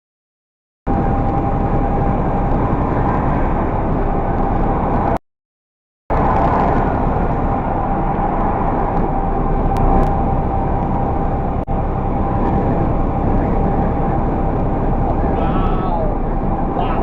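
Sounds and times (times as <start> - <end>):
car road and engine noise: 0.9 - 5.2, 6.1 - 17.0
faint steady whine: 6.1 - 17.0.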